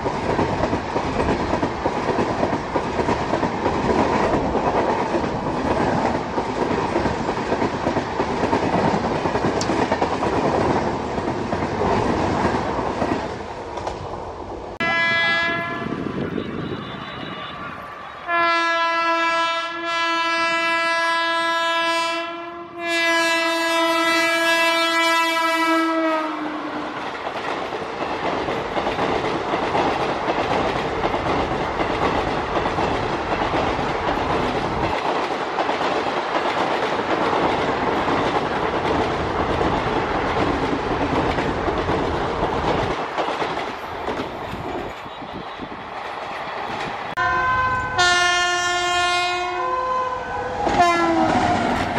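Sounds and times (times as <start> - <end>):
train coaches rushing by: 0.0 - 20.8, 22.8 - 51.9
locomotive horn blasts: 14.8 - 26.9, 47.2 - 51.3.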